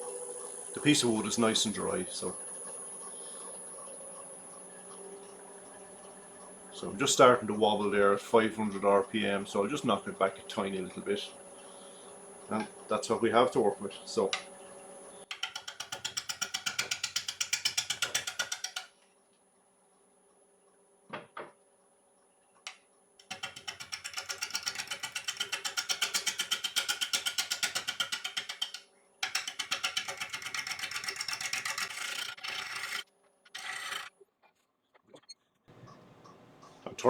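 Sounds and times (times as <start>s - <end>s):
lathe tool clattering on wood: 15.3s - 18.9s, 23.2s - 34.1s.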